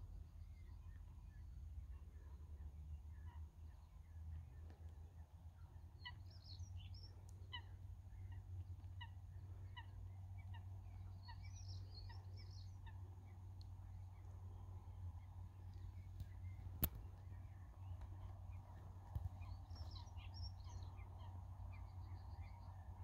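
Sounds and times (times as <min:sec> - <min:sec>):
faint low rumble: 0:00.0 - 0:23.0
birds calling: 0:05.6 - 0:23.0.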